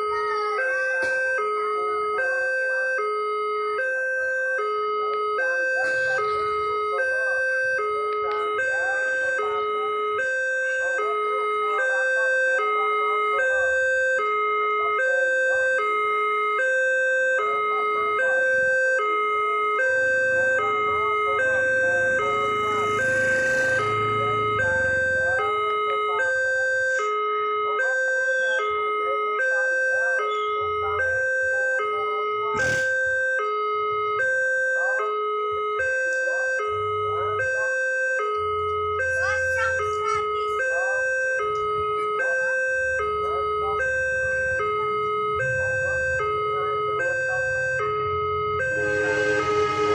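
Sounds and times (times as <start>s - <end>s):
level crossing two-tone alarm: 0.0s - 49.9s
low rumble: 19.8s - 26.9s, 42.9s - 49.9s.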